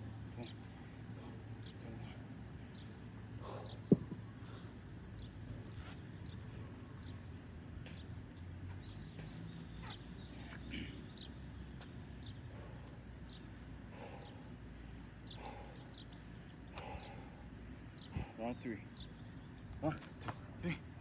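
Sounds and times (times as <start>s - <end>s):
low outdoor rumble: 0.0s - 21.0s
faint bird chirps: 5.2s - 14.5s.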